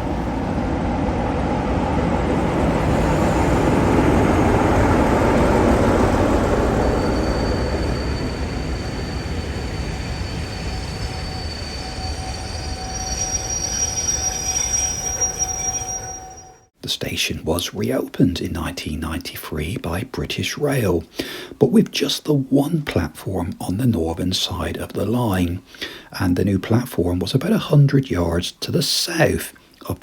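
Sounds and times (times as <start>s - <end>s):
high whining tones: 0.0s - 16.7s
train rumbling past: 0.0s - 16.7s.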